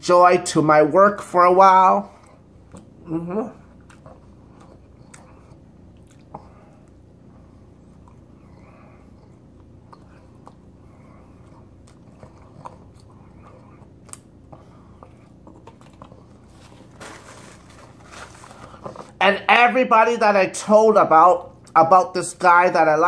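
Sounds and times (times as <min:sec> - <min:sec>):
steady low hum: 0:00.0 - 0:23.0
wet chewing: 0:03.6 - 0:19.2.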